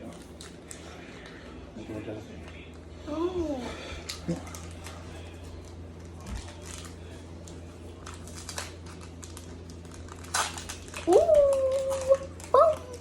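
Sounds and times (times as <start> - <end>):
cards and packaging rustling: 4.4 - 13.0.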